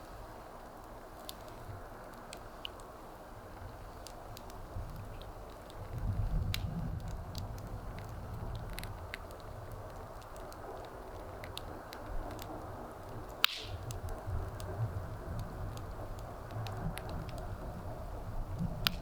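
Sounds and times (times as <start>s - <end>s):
wood fire crackling: 0.0s - 19.0s
sharp wood pop: 13.4s - 14.0s.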